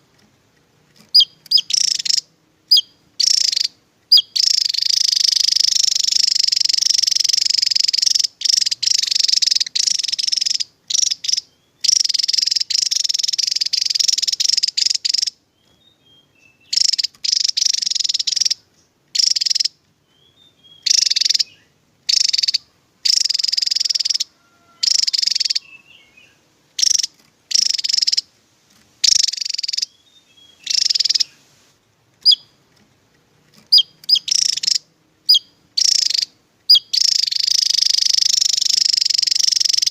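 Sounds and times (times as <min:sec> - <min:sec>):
bird singing rapid high song: 0:01.0 - 0:31.6, 0:32.2 - 0:32.8, 0:33.4 - 0:39.9.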